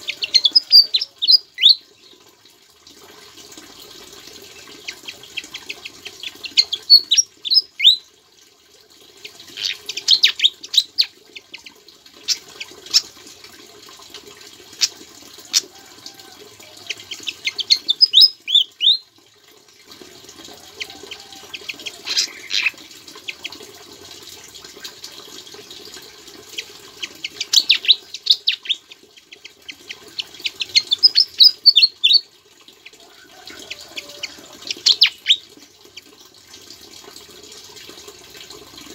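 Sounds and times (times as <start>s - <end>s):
songbird singing: 0.0s - 2.2s, 4.5s - 8.0s, 16.8s - 19.1s, 27.0s - 29.5s, 30.2s - 32.2s
rushing water: 0.0s - 38.9s.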